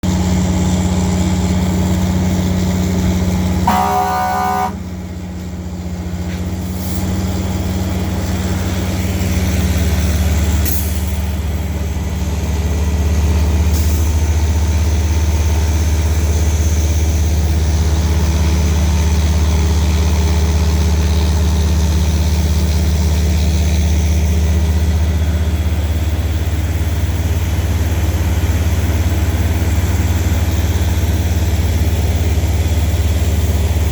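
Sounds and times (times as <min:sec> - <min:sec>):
truck engines droning: 0:00.0 - 0:33.9
short horn tone: 0:03.6 - 0:05.1.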